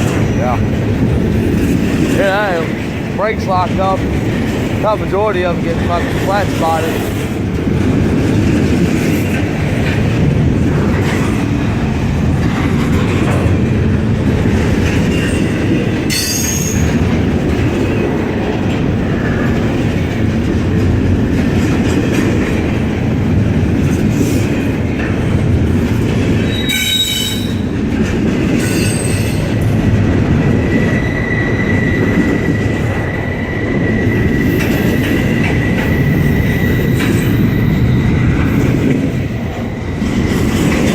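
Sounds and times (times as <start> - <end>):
train wheels rumbling on rails: 0.0 - 40.9
high wheel squeals: 16.1 - 17.0, 26.4 - 27.7, 30.6 - 38.7
steady high-pitched wheel squeal: 16.1 - 17.0, 26.4 - 27.7, 30.6 - 38.7.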